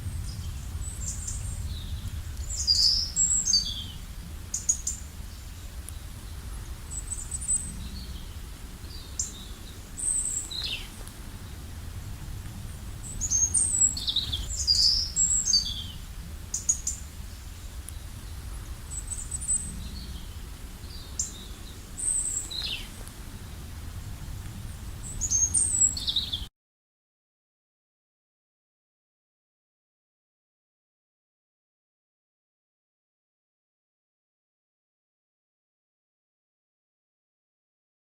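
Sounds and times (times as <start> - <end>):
low background rumble: 0.0 - 26.5
songbirds chirping: 0.0 - 26.5.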